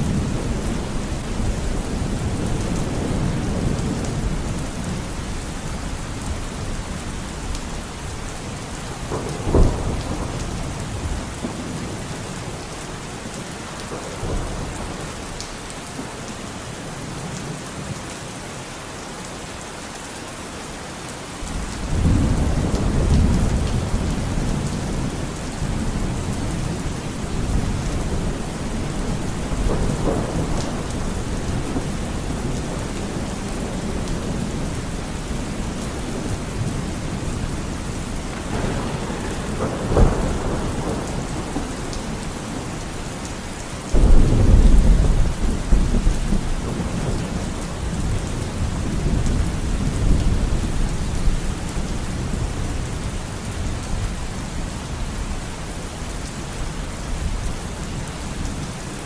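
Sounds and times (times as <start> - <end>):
low rumble of thunder: 0.0 - 12.8, 13.5 - 16.1, 21.4 - 56.0
steady rain: 0.0 - 59.0
thunder crack: 38.0 - 43.1, 44.0 - 50.8.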